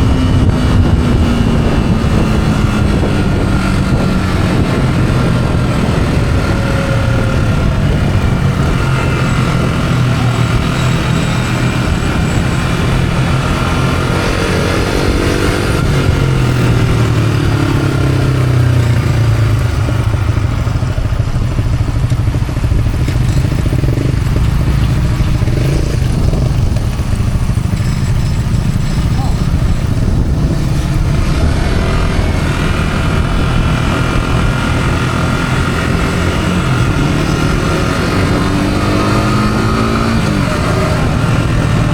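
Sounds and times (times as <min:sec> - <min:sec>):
motorcycle engine running: 0:00.0 - 0:41.9
wind rushing past: 0:20.2 - 0:41.9.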